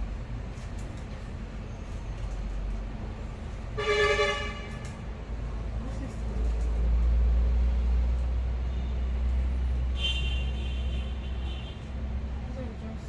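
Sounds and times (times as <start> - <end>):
low rumble of traffic: 0.0 - 13.0
vehicle horn toot: 3.8 - 4.9, 10.0 - 11.8.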